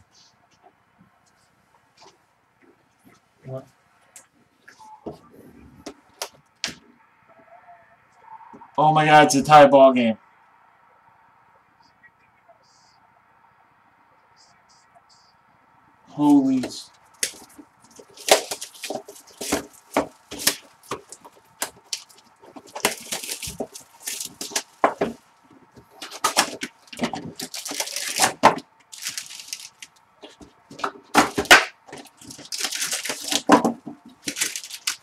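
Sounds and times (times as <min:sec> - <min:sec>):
card wrappers crinkling and tearing: 0:16.2 - 0:35.0.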